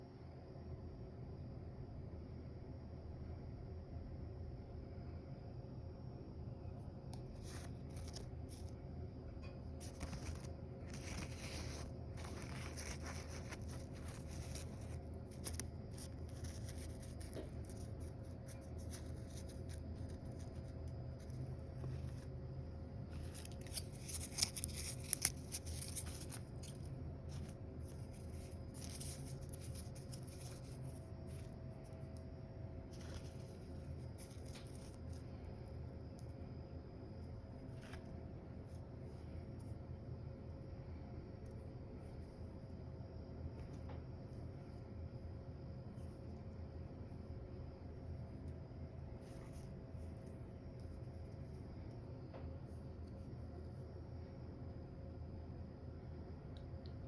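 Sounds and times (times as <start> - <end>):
steady low hum: 0.0 - 57.0
dried flowers crinkling and rustling: 9.8 - 22.4, 23.0 - 32.2, 32.9 - 35.3.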